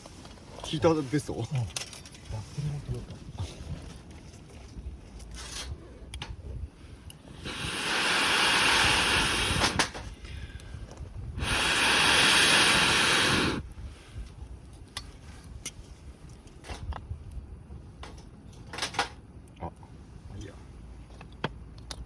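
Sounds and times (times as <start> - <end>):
torch jet hissing: 7.2 - 10.3, 11.2 - 13.7.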